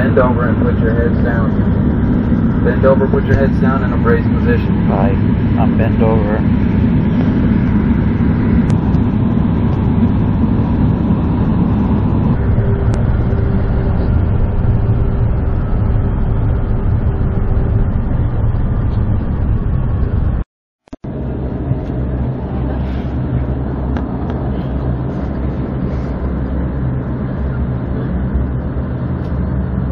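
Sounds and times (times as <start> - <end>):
airflow noise: 0.0 - 20.4, 21.0 - 29.9
turboprop engine and propeller drone: 0.0 - 29.9.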